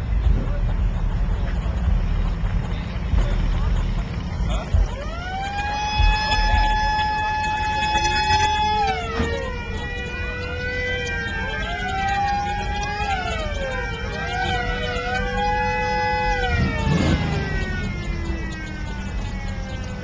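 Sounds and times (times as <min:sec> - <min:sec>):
low rumble: 0:00.0 - 0:20.0
sirens wailing: 0:00.0 - 0:20.0.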